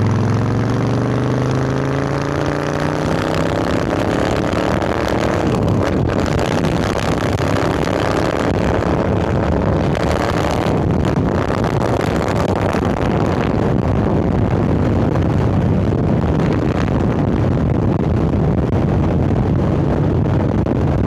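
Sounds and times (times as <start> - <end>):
motorcycle engine running: 0.0 - 21.0
wind noise on microphone: 0.0 - 21.0.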